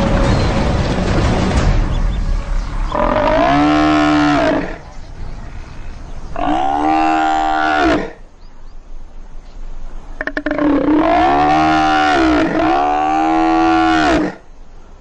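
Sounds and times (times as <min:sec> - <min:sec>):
buffalo bellowing: 0:02.9 - 0:05.0, 0:06.3 - 0:08.2, 0:10.2 - 0:14.4.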